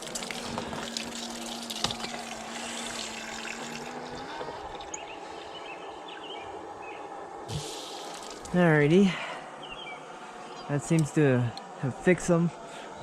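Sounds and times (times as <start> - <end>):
water pouring over hot tongs: 0.0 - 5.0, 7.5 - 8.6
steady low hum: 0.0 - 13.0.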